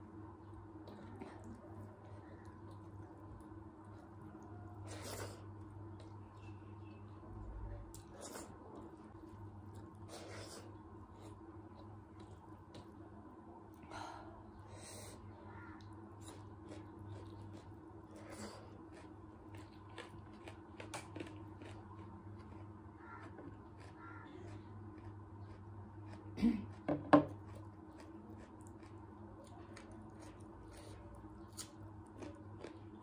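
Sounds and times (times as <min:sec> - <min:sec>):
low steady hum: 0:00.0 - 0:33.0
person chewing and lip smacking: 0:15.8 - 0:33.0.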